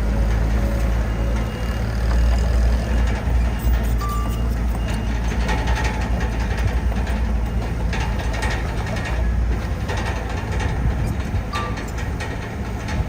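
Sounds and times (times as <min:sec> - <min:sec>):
heavy diesel engine running: 0:00.0 - 0:13.0
metallic clanks: 0:04.0 - 0:13.0.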